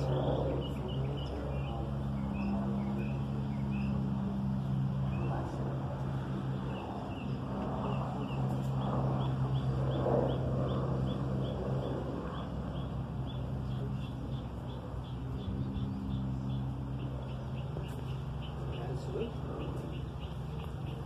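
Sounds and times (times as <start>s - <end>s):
faint murmured speech: 0.0s - 10.7s
steady low hum: 0.0s - 21.0s
small bird chirping: 6.4s - 21.0s.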